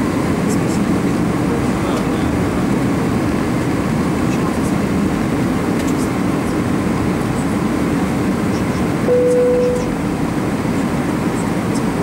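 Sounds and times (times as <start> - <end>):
aircraft cabin engine rumble: 0.0 - 12.0
steady tone: 9.1 - 10.0.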